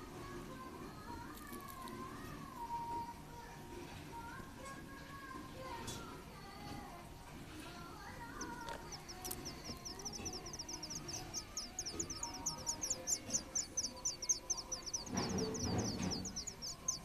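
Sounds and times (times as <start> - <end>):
nestling birds cheeping: 8.0 - 17.0.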